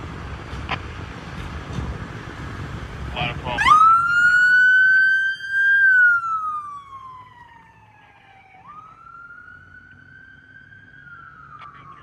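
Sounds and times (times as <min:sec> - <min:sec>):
fire truck siren wailing: 0:02.6 - 0:12.0.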